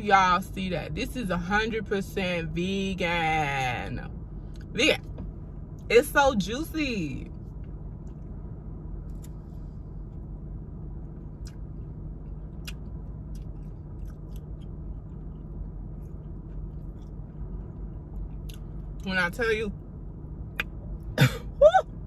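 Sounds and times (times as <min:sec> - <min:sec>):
low hum inside car: 0:00.0 - 0:22.0
person chewing crunchy food: 0:11.3 - 0:19.0.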